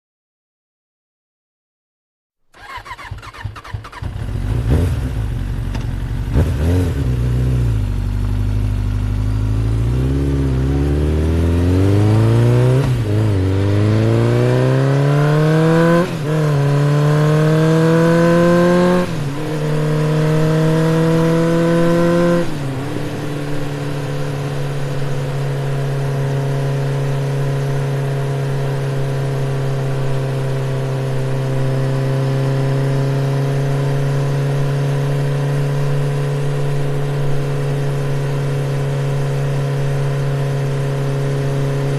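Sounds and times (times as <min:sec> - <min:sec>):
truck engine accelerating: 0:02.6 - 0:26.2.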